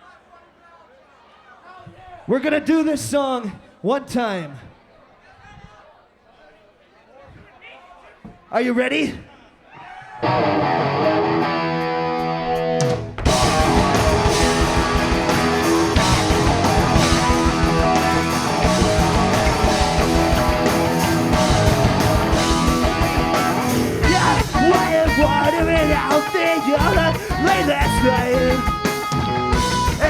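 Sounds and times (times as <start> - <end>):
drums: 10.2 - 30.0
rock band playing: 10.2 - 30.0
electric guitar chord ringing: 10.4 - 25.0.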